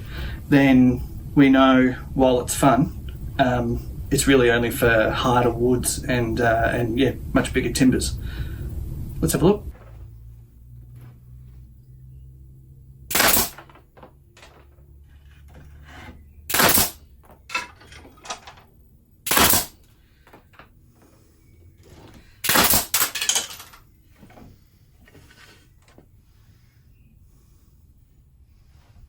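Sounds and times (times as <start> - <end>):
pneumatic nail punch blasts: 13.1 - 13.7, 16.5 - 17.0, 19.2 - 19.8, 22.4 - 23.2.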